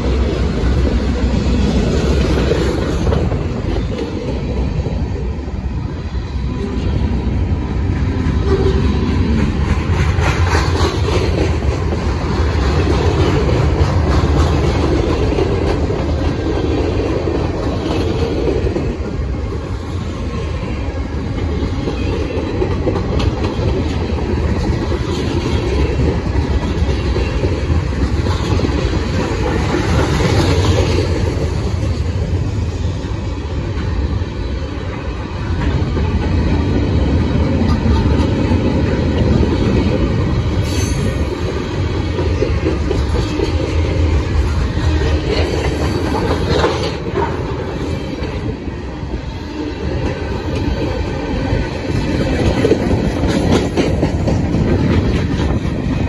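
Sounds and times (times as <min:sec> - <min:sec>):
freight cars rumbling on rails: 0:00.0 - 0:56.0
wheels clicking over rail joints: 0:08.2 - 0:19.7, 0:21.3 - 0:32.4, 0:34.8 - 0:48.6, 0:49.8 - 0:56.0.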